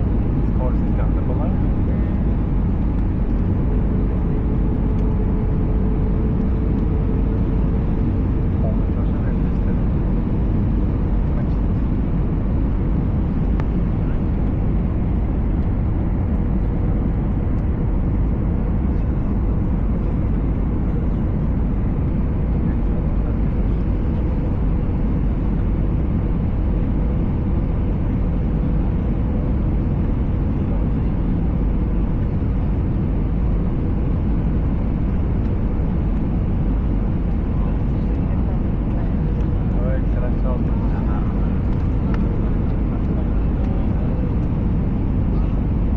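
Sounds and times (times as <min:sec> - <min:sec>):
airplane cabin engine rumble: 0:00.0 - 0:45.9
light tick: 0:41.7 - 0:42.2.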